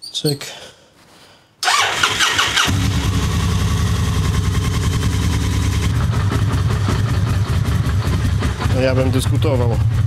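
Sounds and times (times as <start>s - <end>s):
motorcycle engine starter cranking: 1.6s - 3.1s
motorcycle engine idling: 2.7s - 10.0s.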